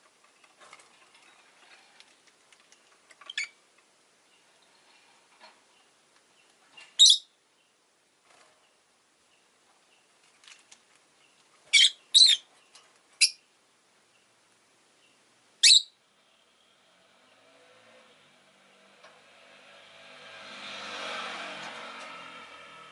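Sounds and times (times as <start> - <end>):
lovebird shrill chirps: 7.0 - 7.3, 11.7 - 12.4, 13.2 - 13.4, 15.6 - 16.0.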